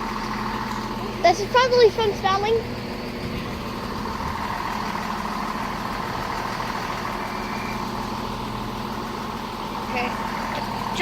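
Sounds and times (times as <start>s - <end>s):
train diesel engines droning: 0.0s - 11.0s.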